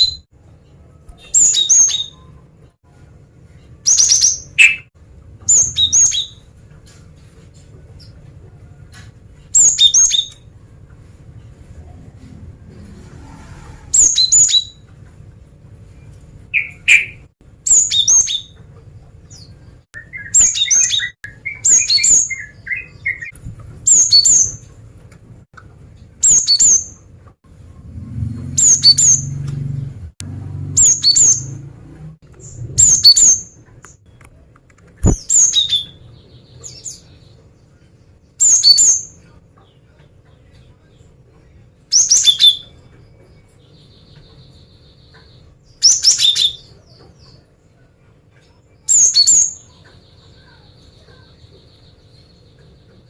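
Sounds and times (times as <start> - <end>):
low rumble: 10.6 - 14.2
sharp click: 33.8 - 35.3
bird chattering notes: 35.0 - 36.1.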